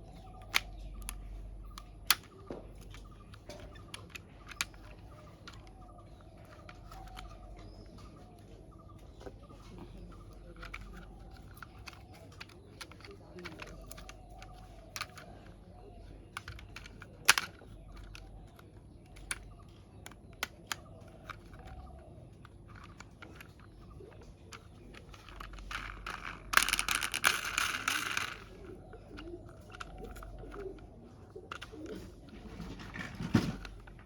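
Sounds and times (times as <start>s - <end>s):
plastic parts clicking: 0.0s - 34.0s
dense rattling or crinkling: 21.2s - 30.8s, 31.5s - 34.0s.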